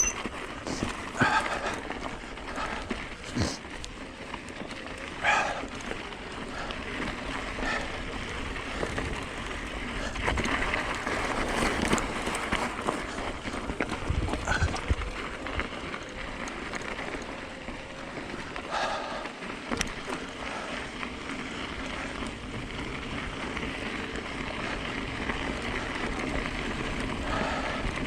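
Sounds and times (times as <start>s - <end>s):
knocks and rattles over rocks: 0.0s - 17.2s
bike tyres on dirt trail: 0.0s - 28.0s.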